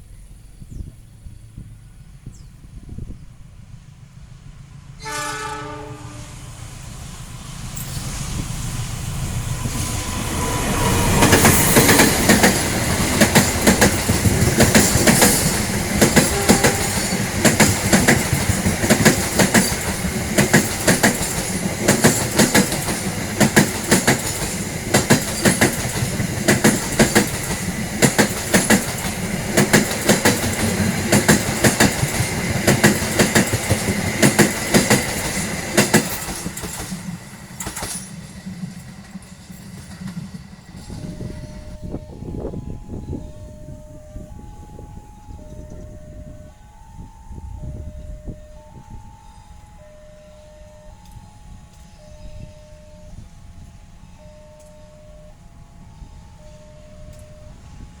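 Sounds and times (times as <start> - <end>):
train wheels clacking on rails: 6.8 - 43.2.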